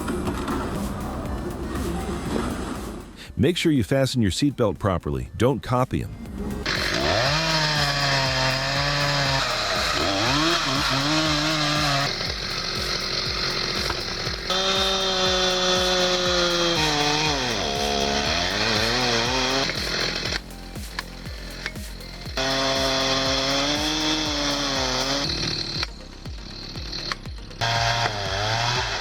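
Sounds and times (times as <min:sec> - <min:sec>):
chainsaw revving: 0:06.6 - 0:29.0.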